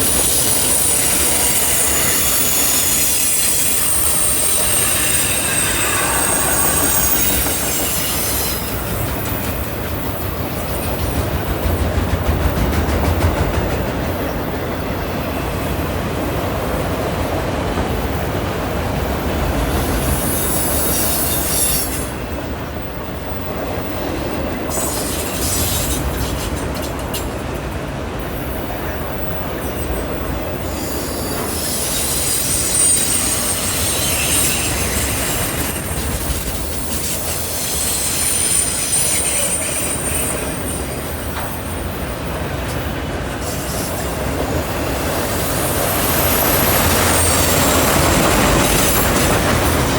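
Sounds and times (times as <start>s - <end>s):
wheels rumbling on rail: 0.0s - 49.9s
high-pitched wheel squeal: 0.3s - 9.1s, 30.6s - 36.0s, 36.8s - 41.1s.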